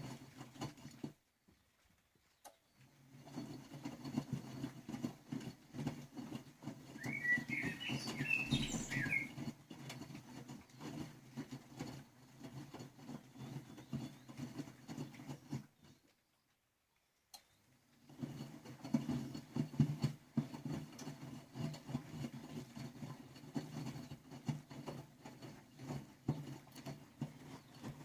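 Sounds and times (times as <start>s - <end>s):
rapid clicking and rattling: 0.0s - 1.3s, 2.7s - 16.1s, 17.4s - 28.0s
washing machine humming: 6.6s - 9.6s
squeaky wavering whistle: 7.0s - 9.4s.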